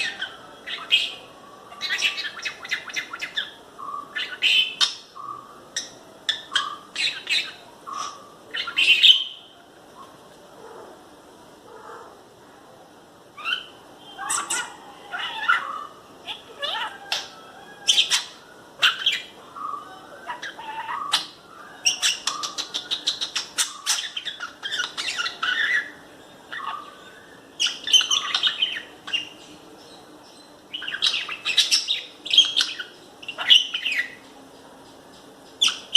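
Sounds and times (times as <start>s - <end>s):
lovebird chirping and clicking: 17.1s - 17.3s, 22.0s - 24.1s.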